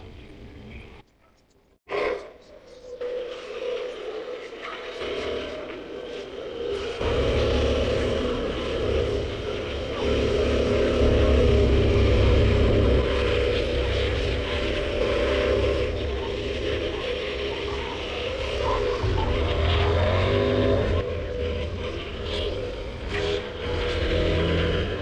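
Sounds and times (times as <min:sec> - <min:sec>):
wind rumble on microphone: 0:04.2 - 0:25.0
motorcycle engine running: 0:07.0 - 0:25.0.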